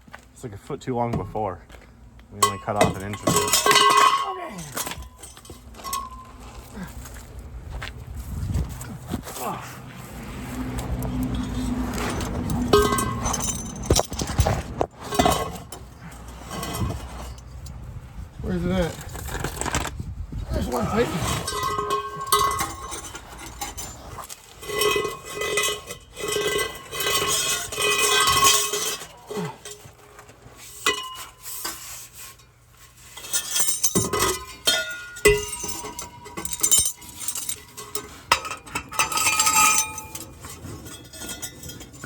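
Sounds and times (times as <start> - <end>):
metal pipes clanking: 2.3 - 7.8, 9.3 - 17.9, 20.5 - 42.0
sharp metal knocks: 33.8 - 40.3.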